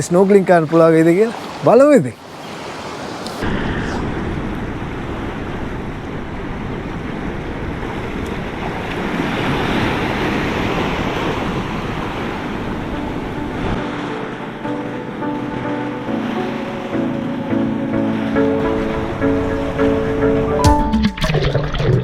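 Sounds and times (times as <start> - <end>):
sea waves washing onto beach: 0.0 - 20.6
wind buffeting microphone: 3.1 - 14.7.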